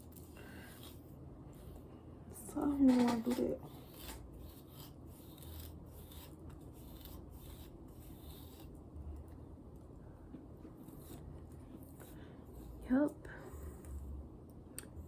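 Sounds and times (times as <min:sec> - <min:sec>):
comb rasping through hair: 0:00.0 - 0:08.8.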